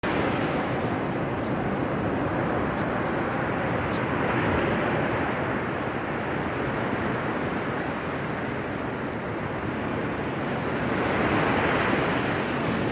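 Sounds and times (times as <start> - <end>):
ocean waves breaking: 0.0 - 12.9.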